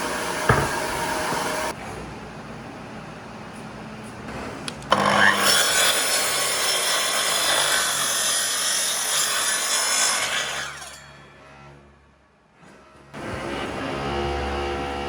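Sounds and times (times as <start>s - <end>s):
power tool cutting wood: 0.0s - 1.7s, 4.9s - 11.0s, 13.2s - 15.0s
sharp knock: 0.5s - 1.1s.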